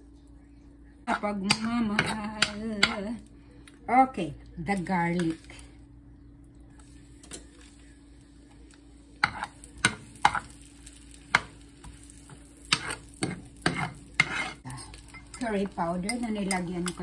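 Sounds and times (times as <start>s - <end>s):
utensil scraping a pan: 12.2s - 17.0s.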